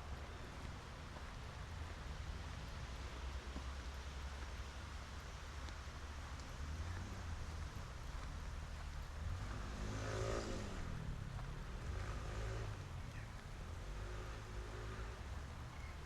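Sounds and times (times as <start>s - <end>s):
street traffic rumble: 0.0s - 16.0s
car driving past: 6.4s - 16.0s.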